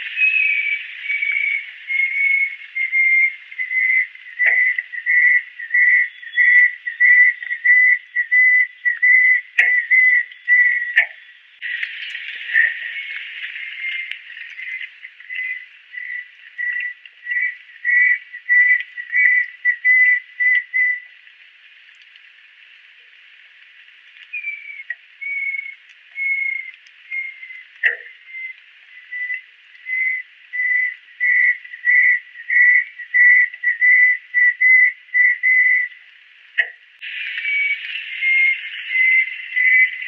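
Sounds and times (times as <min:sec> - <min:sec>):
bird whistling clear notes: 0:37.3 - 0:40.0.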